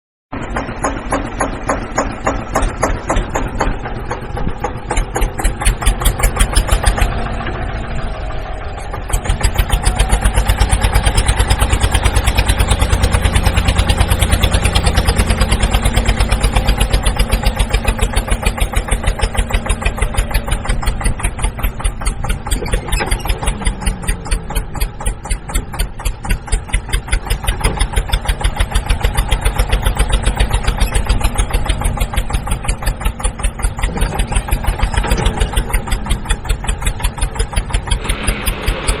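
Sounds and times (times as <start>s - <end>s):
tractor engine running: 0.3s - 39.0s.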